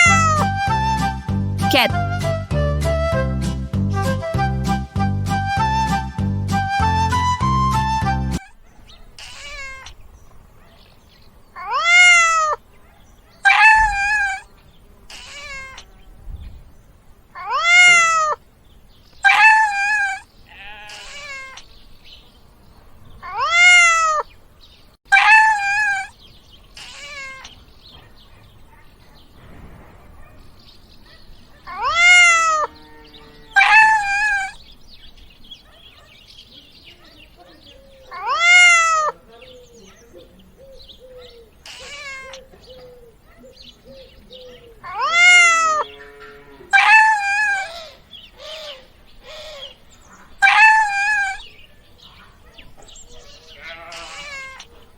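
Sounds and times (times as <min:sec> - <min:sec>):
cat meowing: 0:09.2 - 0:10.0, 0:11.6 - 0:12.6, 0:13.5 - 0:14.4, 0:15.1 - 0:15.9, 0:17.4 - 0:18.4, 0:19.2 - 0:21.6, 0:23.2 - 0:24.2, 0:26.8 - 0:27.5, 0:31.7 - 0:32.7, 0:33.6 - 0:34.6, 0:38.1 - 0:39.2, 0:41.7 - 0:42.5, 0:44.8 - 0:45.8, 0:50.4 - 0:51.4, 0:53.6 - 0:54.7.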